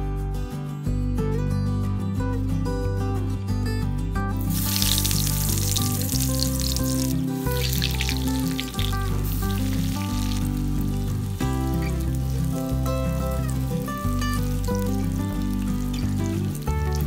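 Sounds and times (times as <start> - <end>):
guitar background music: 0.0 - 17.0
food deep-frying in oil: 4.4 - 17.0.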